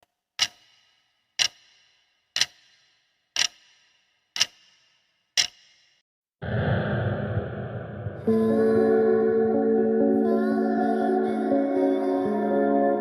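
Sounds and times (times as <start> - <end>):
sharp ringing ticks: 0.4 - 6.0.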